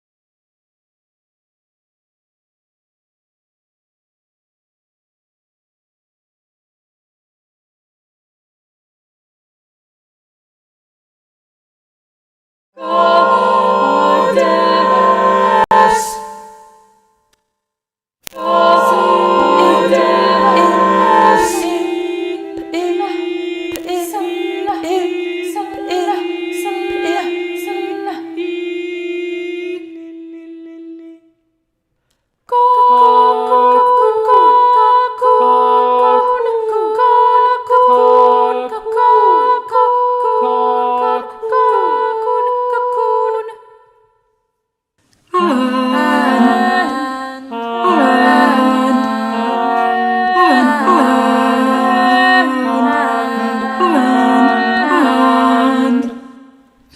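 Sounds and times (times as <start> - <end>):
unaccompanied choir singing: 12.8 - 17.0, 18.3 - 31.3, 32.5 - 44.0, 45.3 - 56.9.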